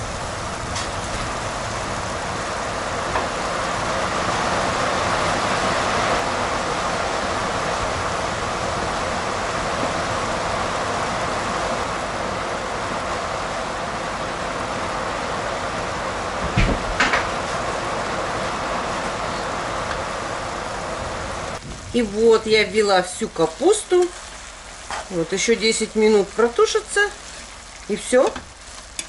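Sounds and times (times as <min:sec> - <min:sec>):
vegetables sizzling in a pot: 0:21.2 - 0:29.0
faint crackles: 0:21.6 - 0:29.0.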